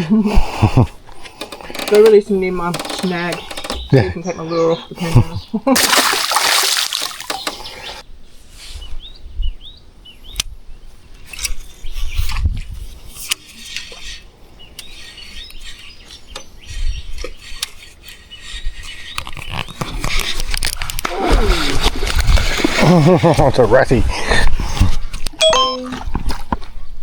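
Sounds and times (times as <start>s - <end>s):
birds chirping: 0.0s - 8.0s, 13.6s - 20.5s
sharp clicks and knocks: 1.2s - 4.0s, 7.1s - 7.8s.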